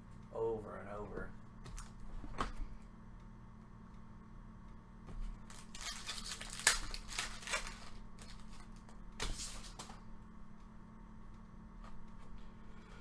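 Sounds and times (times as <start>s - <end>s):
wrapper tearing and crinkling: 5.5s - 8.8s.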